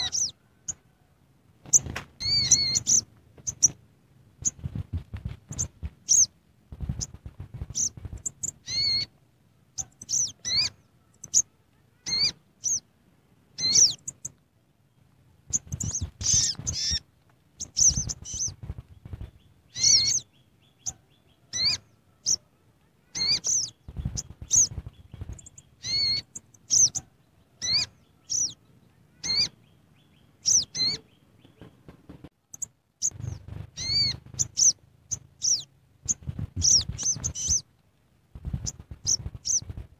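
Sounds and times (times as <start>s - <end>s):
bird chirping: 0.0s - 3.8s, 4.4s - 12.9s, 13.5s - 37.7s, 38.4s - 39.9s
dull low knocks or rustles: 4.4s - 8.3s, 33.0s - 35.2s, 36.0s - 37.6s, 38.3s - 39.9s.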